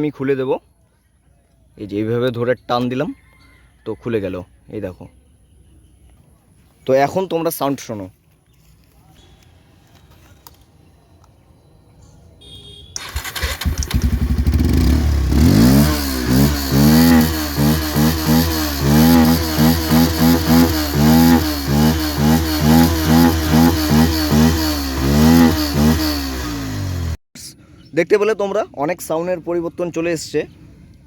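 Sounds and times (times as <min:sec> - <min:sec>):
motorcycle engine revving: 0:13.0 - 0:27.2
motorcycle engine starting: 0:13.0 - 0:27.2.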